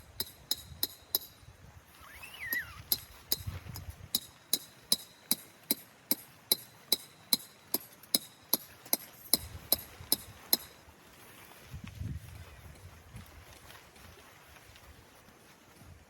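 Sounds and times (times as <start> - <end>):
hammer striking metal peg: 0.1 - 1.4, 2.5 - 10.8.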